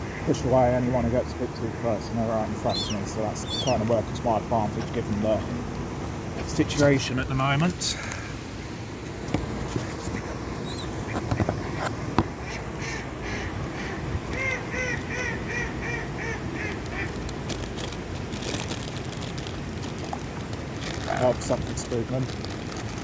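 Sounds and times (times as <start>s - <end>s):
outdoor background noise: 0.0s - 23.0s
duck quacking: 2.6s - 3.9s, 12.4s - 17.1s.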